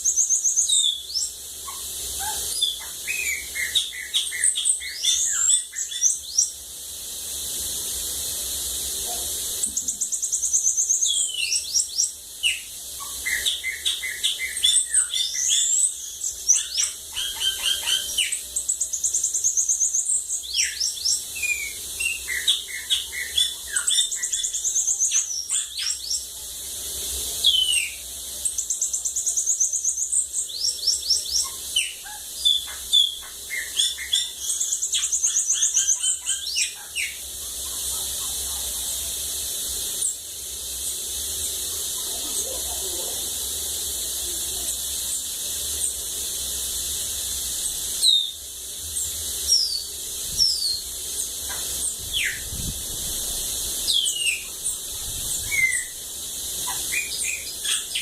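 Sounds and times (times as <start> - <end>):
bird singing high trills: 0.0 - 6.6, 9.6 - 26.3, 27.4 - 37.2, 47.6 - 52.6, 53.8 - 56.0, 56.6 - 58.0
steady high hiss: 0.0 - 58.0.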